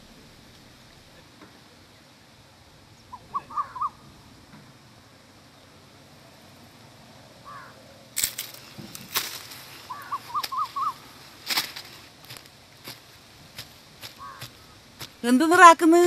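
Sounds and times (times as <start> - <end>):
bird chirping: 9.9 - 11.1.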